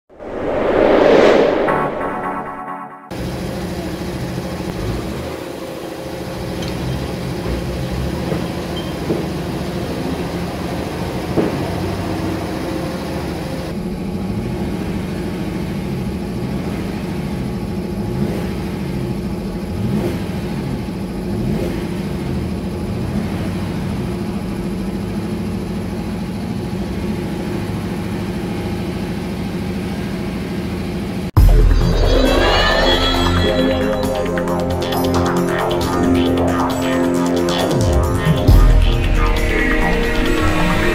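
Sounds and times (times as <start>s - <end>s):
car engine running at raised speed: 3.1s - 32.6s.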